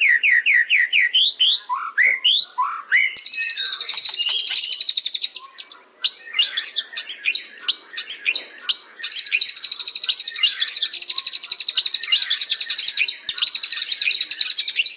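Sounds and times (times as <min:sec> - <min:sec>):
bird singing whistles and trills: 0:00.0 - 0:14.9.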